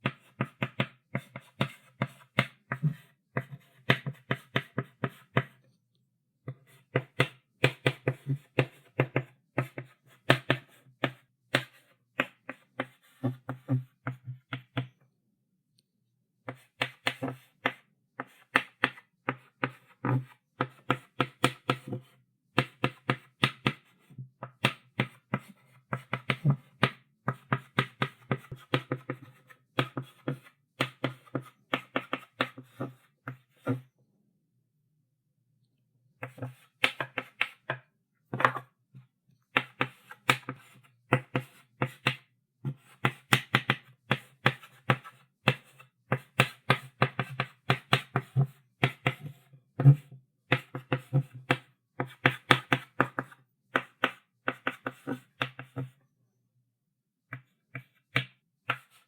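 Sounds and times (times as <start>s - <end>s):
chalk tapping and scratching: 0.0s - 5.7s, 16.5s - 33.8s, 36.2s - 37.8s, 39.6s - 55.9s, 57.3s - 59.0s.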